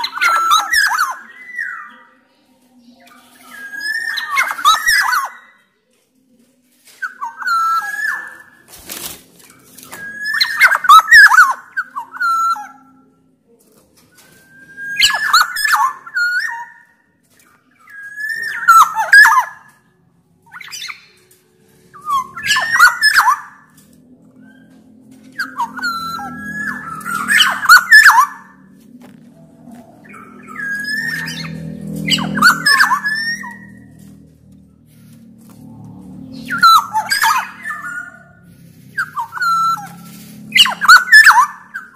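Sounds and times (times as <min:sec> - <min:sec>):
oriole fluting song: 0:07.0 - 0:13.4, 0:14.1 - 0:41.9
harsh rasping bird notes: 0:13.9 - 0:41.9.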